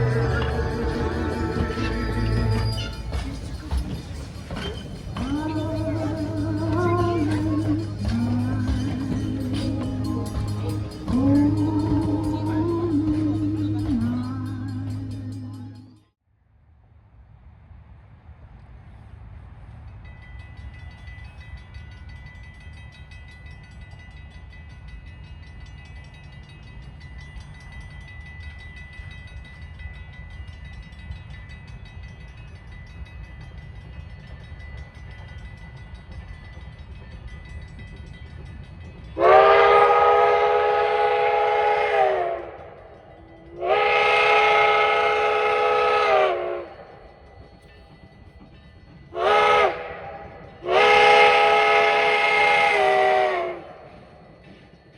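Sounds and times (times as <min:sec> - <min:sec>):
steam whistle blasts: 0:00.0 - 0:03.5, 0:39.2 - 0:42.7, 0:43.6 - 0:46.8, 0:49.2 - 0:53.9
steam locomotive rumbling: 0:00.0 - 0:16.0, 0:17.8 - 0:54.9.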